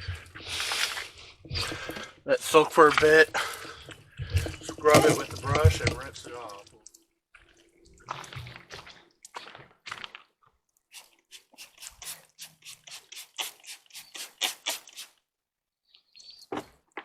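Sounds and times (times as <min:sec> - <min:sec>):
scrub brush scrubbing wet wood: 0:04.7 - 0:06.6, 0:10.9 - 0:15.2.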